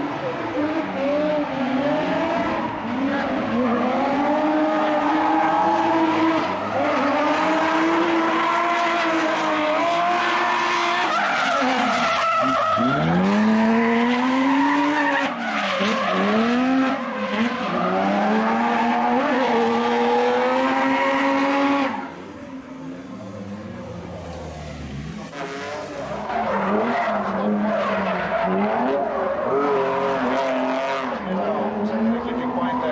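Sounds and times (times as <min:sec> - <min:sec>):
car engine revving high: 0:00.0 - 0:32.9
tyre squeal: 0:10.2 - 0:16.4.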